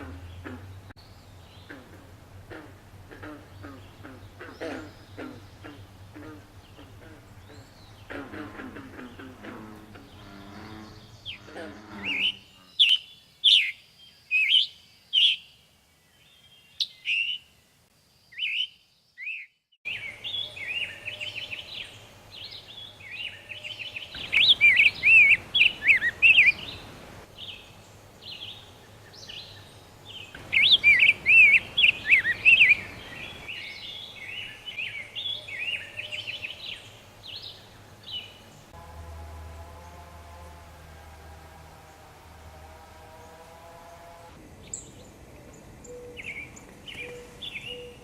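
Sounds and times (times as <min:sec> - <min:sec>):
songbirds chirping: 0:00.0 - 0:48.0
bird rapid warbling: 0:22.4 - 0:27.6, 0:29.4 - 0:36.8.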